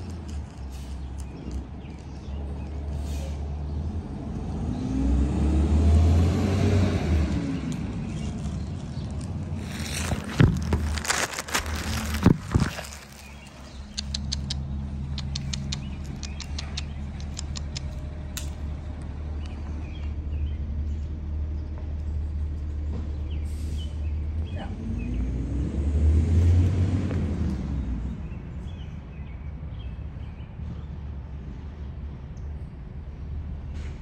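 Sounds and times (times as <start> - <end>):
low engine-like hum: 0.0 - 34.0
road vehicle passing: 0.0 - 34.0
quick sharp clicks: 13.8 - 18.7.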